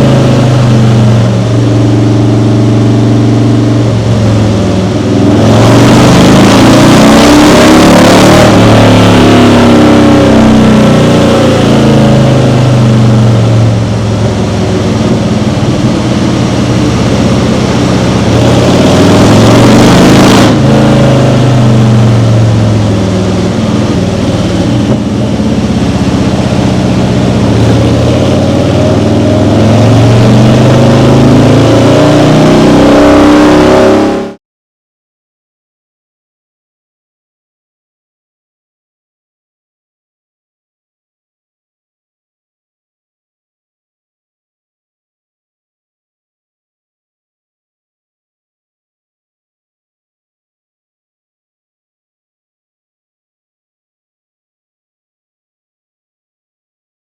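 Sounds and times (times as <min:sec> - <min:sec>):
motorcycle engine revving: 0:00.0 - 0:34.4.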